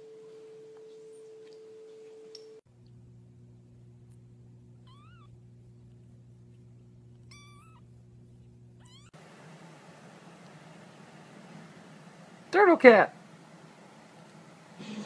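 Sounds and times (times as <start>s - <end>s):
steady low hum: 0.0s - 15.0s
kitten mewing: 4.8s - 5.3s, 7.2s - 7.9s, 8.8s - 9.1s.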